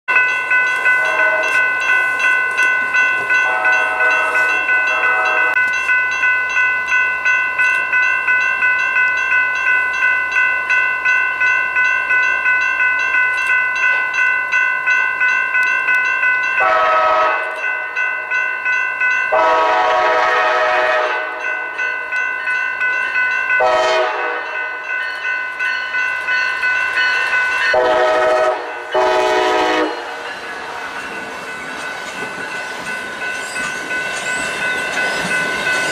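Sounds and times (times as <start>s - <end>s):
crossing warning bell ringing: 0.1s - 35.9s
train air horn blasts: 1.0s - 1.7s, 3.4s - 5.6s, 16.6s - 17.6s, 19.3s - 21.4s, 23.6s - 24.6s, 27.7s - 30.2s.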